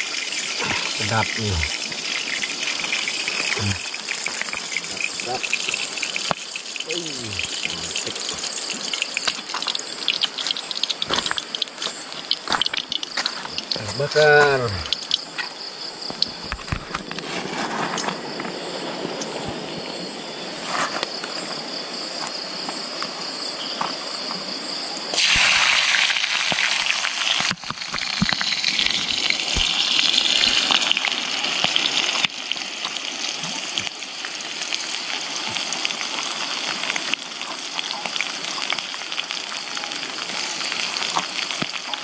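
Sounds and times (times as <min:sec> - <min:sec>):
food sizzling in hot oil: 0:00.0 - 0:18.4, 0:25.1 - 0:42.0
crickets chirping: 0:00.0 - 0:42.0.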